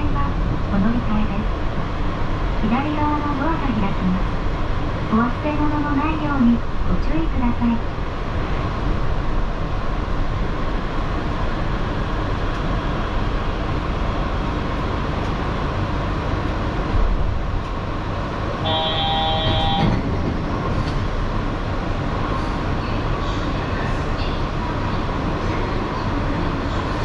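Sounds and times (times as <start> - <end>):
train coming to a stop: 10.6 - 27.0
electronic door chime: 18.6 - 20.0.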